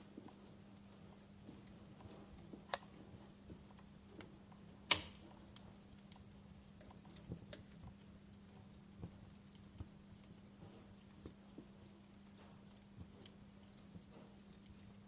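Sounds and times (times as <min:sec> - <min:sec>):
faint low hum: 0:00.0 - 0:15.0
wood fire crackling: 0:00.0 - 0:15.0.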